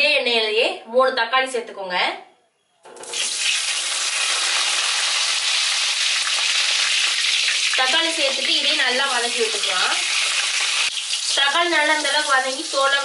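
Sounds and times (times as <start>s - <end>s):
tomatoes sizzling in hot oil: 3.0s - 13.0s.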